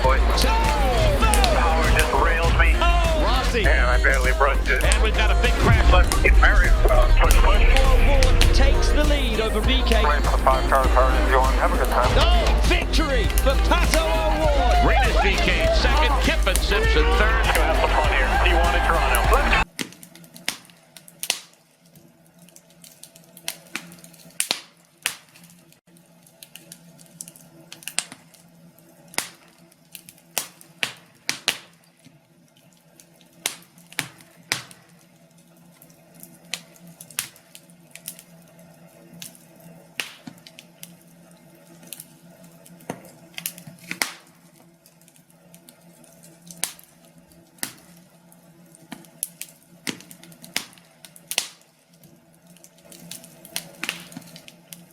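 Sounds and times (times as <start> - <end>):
faint low hum: 0.0 - 19.7
wood fire crackling: 0.0 - 54.9.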